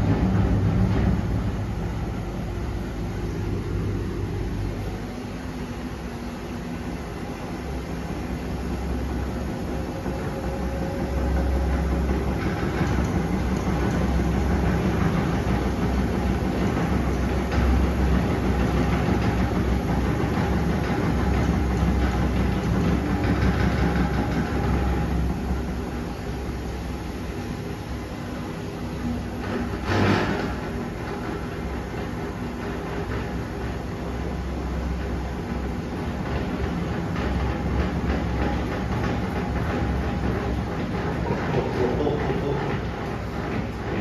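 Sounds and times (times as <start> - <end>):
washing machine motor and drum: 0.0 - 44.0.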